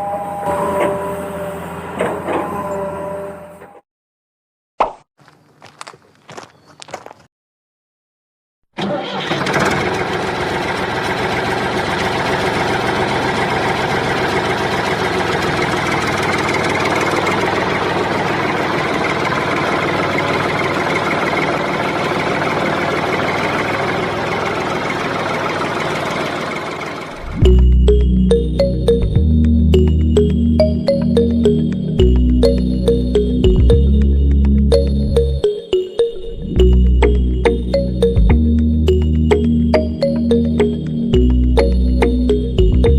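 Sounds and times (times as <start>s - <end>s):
tractor engine running: 8.8s - 35.6s, 36.6s - 42.9s.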